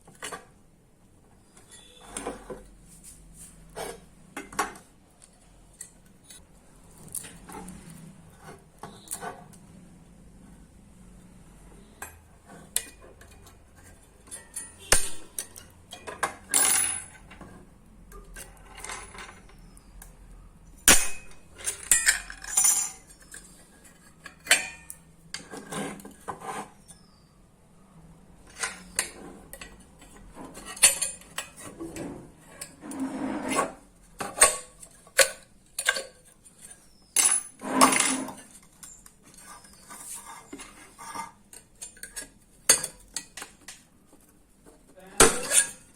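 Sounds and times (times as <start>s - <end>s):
hand tools clinking on metal: 20.9s - 23.5s.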